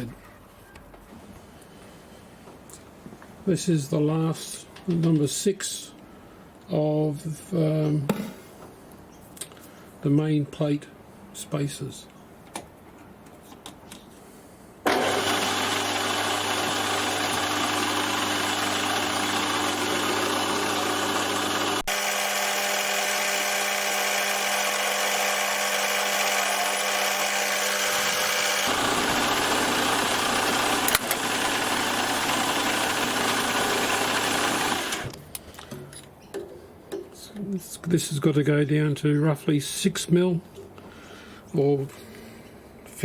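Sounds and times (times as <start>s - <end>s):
machine tool motor whirring: 14.9s - 35.2s.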